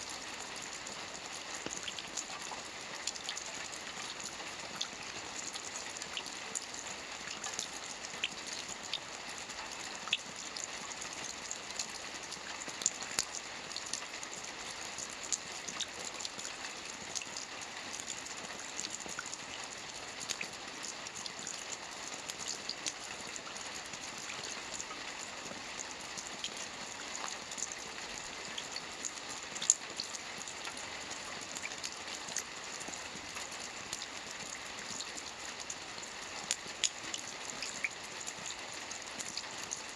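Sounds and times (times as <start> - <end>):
rain hissing on a lake: 0.0 - 39.9.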